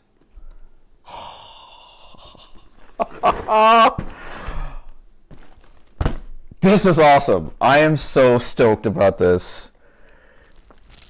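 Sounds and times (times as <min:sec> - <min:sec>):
man exhaling: 0:01.0 - 0:02.6, 0:04.0 - 0:05.0.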